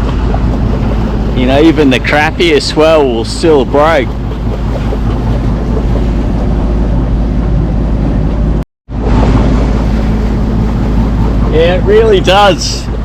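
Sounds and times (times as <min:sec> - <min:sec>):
boat engine humming: 0:00.0 - 0:13.0
water noise: 0:00.0 - 0:13.0
wind noise: 0:00.0 - 0:13.0.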